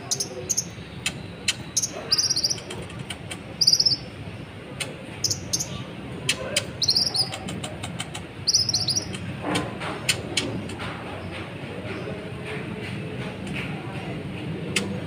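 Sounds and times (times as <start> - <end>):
bird twittering: 0.0 - 4.2, 5.2 - 9.3
sharp ticking bird calls: 0.0 - 9.4
low background hum: 0.0 - 15.0.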